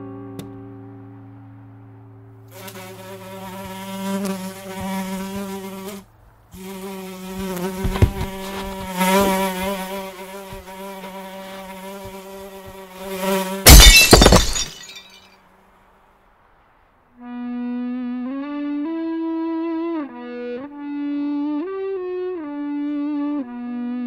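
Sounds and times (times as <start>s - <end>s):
housefly buzzing: 2.5s - 15.0s
dull thumps: 7.3s - 10.8s
glassware crashing: 13.7s - 15.2s.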